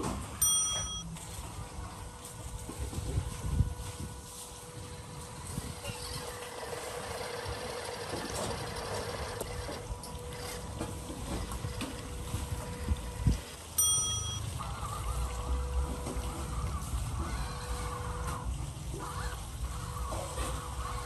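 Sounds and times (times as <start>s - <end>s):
short pitched beep: 0.4s - 1.1s
rc truck motor whine: 5.4s - 13.6s.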